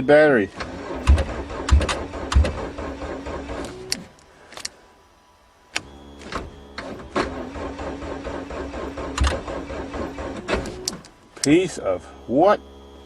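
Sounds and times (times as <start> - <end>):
car starter motor cranking: 0.5 - 4.1, 6.2 - 11.2.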